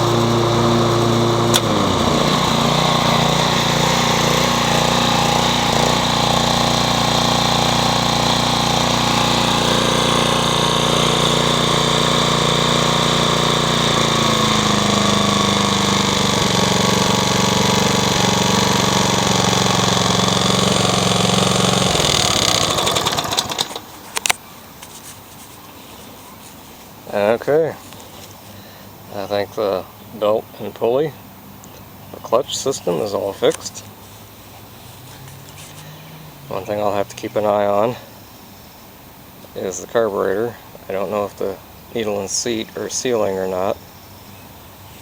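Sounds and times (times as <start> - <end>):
lawn mower engine running: 0.0 - 24.4, 32.5 - 38.1.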